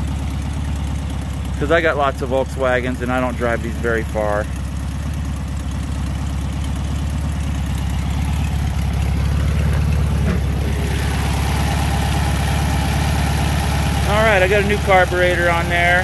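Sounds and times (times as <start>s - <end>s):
car engine idling: 0.0s - 16.0s
engine lid knock: 9.5s - 11.5s.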